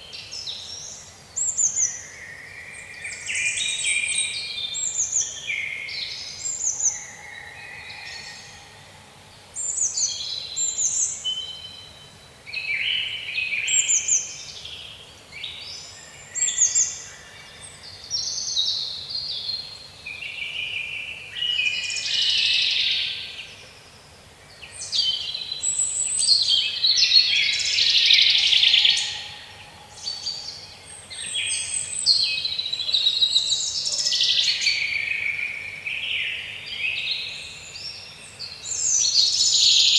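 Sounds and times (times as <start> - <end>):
birds singing and calling: 24.5 - 39.9.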